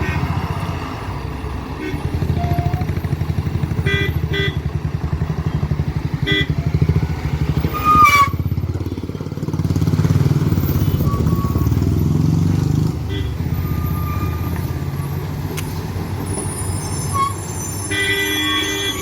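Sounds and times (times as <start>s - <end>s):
truck diesel engine throbbing: 0.0s - 19.0s
squeal rising in pitch: 10.7s - 11.9s, 13.7s - 14.9s, 16.3s - 19.0s.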